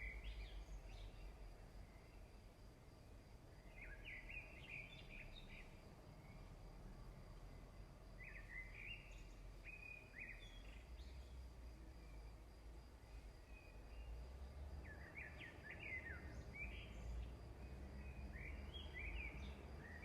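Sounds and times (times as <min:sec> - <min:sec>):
songbird chirping: 0:00.0 - 0:20.0.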